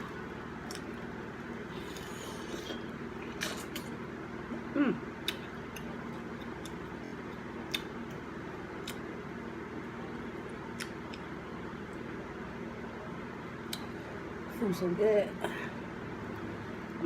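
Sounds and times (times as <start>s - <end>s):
steady background hum: 0.0s - 17.0s
person humming mm: 4.7s - 5.1s.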